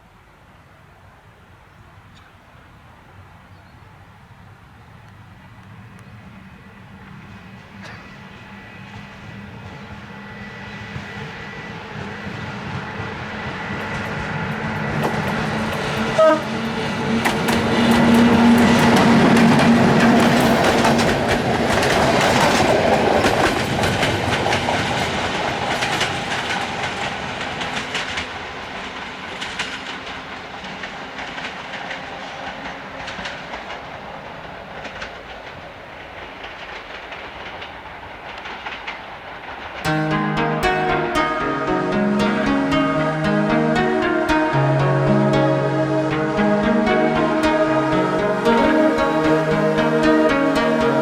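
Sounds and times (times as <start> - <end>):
train horn toot: 13.8 - 21.1
train wheels clacking over rail joints: 13.8 - 39.8.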